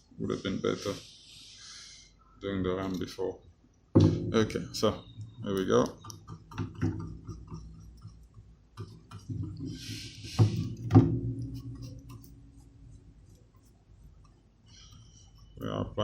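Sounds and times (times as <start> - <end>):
thumps: 3.9 - 12.7.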